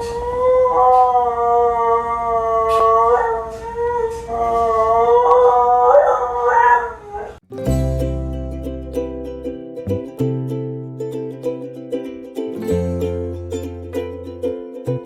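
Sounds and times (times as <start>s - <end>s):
dog howling: 0.0s - 7.4s
second lower dog howl: 0.0s - 7.4s.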